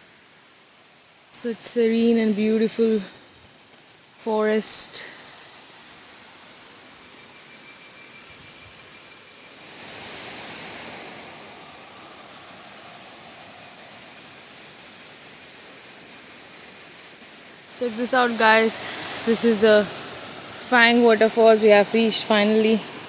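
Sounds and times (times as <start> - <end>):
cicadas droning: 0.0 - 23.0
soft background hiss: 0.0 - 23.0
broad rush of noise: 9.2 - 23.0.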